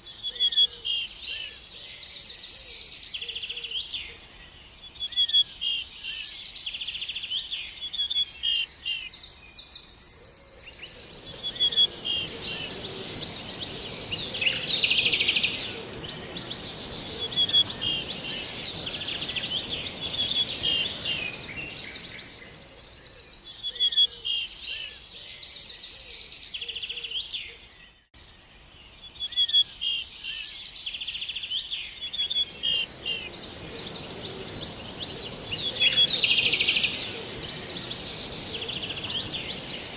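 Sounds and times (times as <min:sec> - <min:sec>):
songbirds chirping and trilling: 0:00.0 - 0:39.9
steady high hiss: 0:10.7 - 0:23.0, 0:32.0 - 0:39.9.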